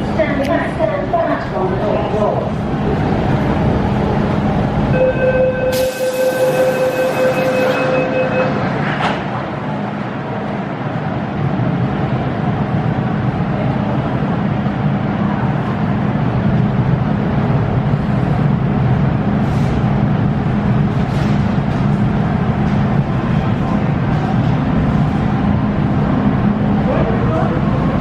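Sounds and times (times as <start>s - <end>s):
electric train rumbling: 0.0s - 28.0s
steady high tone: 4.9s - 8.7s.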